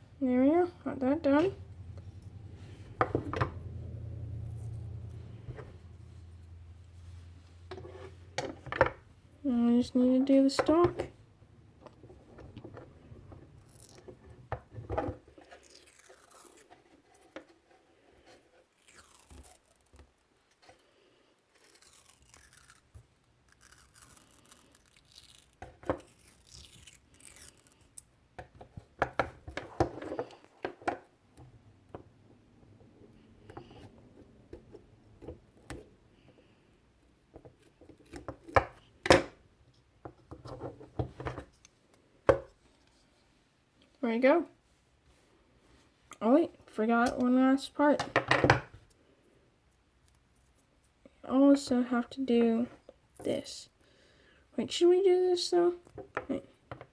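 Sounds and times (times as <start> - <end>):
tape rasping and peeling: 15.5 - 17.2, 18.6 - 20.6, 21.5 - 28.0.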